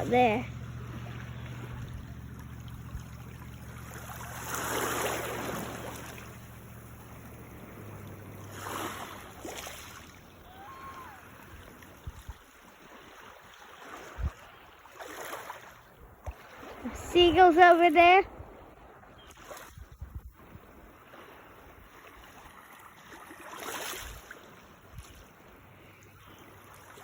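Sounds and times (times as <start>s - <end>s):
low steady hum: 0.0s - 14.8s
small waves washing on beach: 0.0s - 27.0s.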